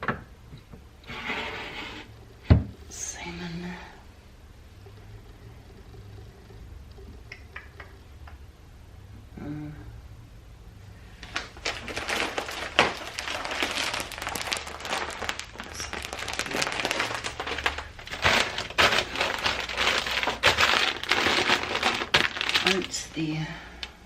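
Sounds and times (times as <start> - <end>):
food packaging crinkling: 11.1 - 23.2.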